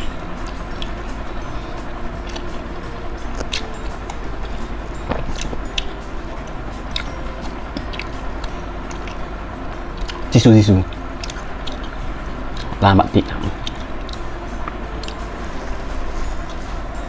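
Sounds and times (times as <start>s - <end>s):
chewing close up: 3.3s - 4.2s, 5.1s - 5.9s, 6.9s - 9.3s, 10.0s - 10.3s, 10.9s - 12.0s
wet mouth clicks: 8.9s - 9.2s.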